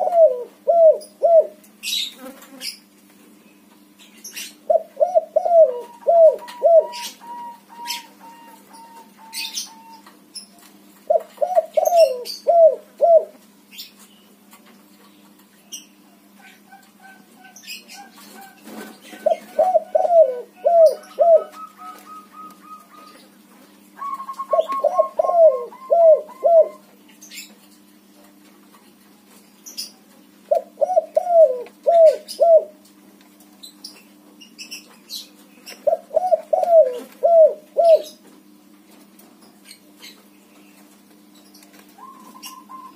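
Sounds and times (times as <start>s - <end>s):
dove cooing: 0.0s - 1.6s, 4.7s - 10.1s, 11.1s - 13.4s, 16.4s - 23.3s, 24.0s - 26.9s, 30.5s - 32.8s, 35.8s - 38.2s, 42.0s - 42.9s.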